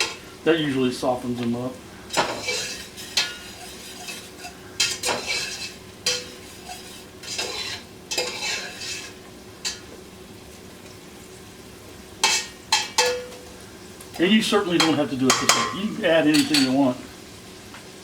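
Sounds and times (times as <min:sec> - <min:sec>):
spoon stirring and scraping pot: 0:00.0 - 0:00.2, 0:02.1 - 0:10.0, 0:12.2 - 0:13.6, 0:14.8 - 0:16.8
vegetables sizzling: 0:00.0 - 0:18.0.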